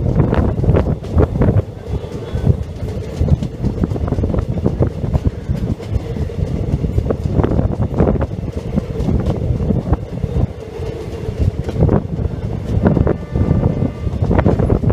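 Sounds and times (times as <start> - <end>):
train wheels rumbling: 0.0 - 14.9.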